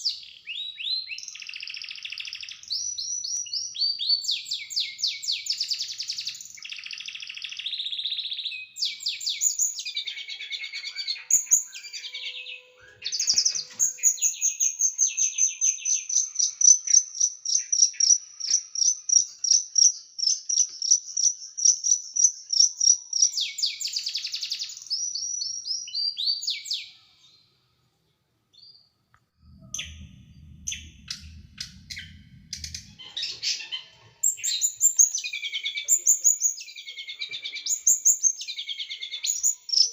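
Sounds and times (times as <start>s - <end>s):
low hum: 29.0s - 34.2s.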